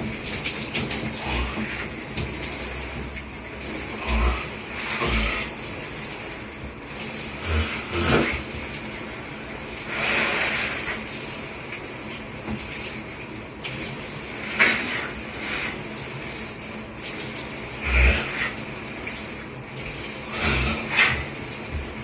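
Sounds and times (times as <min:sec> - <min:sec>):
shower spraying water: 0:00.0 - 0:22.0
thumps and sharp splashes: 0:20.4 - 0:22.0.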